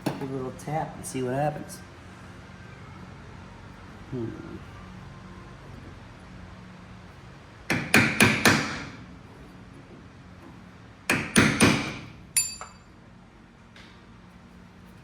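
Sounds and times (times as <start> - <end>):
hammer striking metal: 7.7 - 9.0, 11.1 - 12.9.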